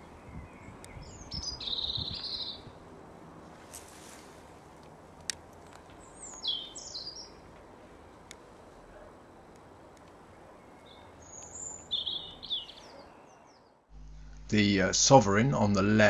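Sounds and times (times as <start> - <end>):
songbird chirping: 0.0 - 2.8, 5.2 - 16.0
faint outdoor hiss: 0.0 - 16.0
faint clicks: 4.8 - 6.4, 9.5 - 10.2.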